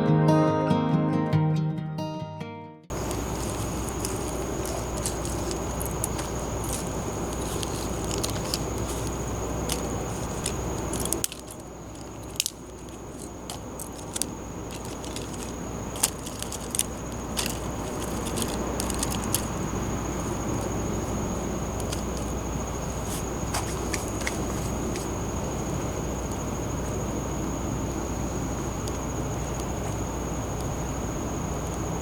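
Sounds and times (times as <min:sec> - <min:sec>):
campfire crackling and popping: 0:02.9 - 0:25.3.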